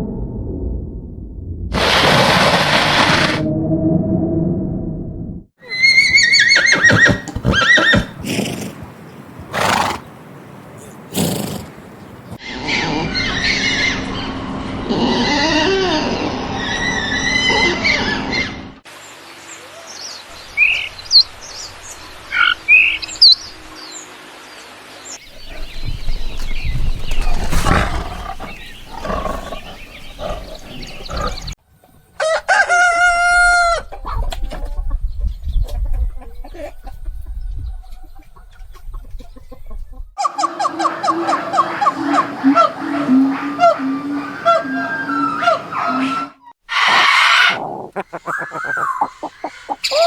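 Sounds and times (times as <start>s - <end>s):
rooster crowing: 32.2s - 33.9s
chickens clucking: 33.6s - 50.0s.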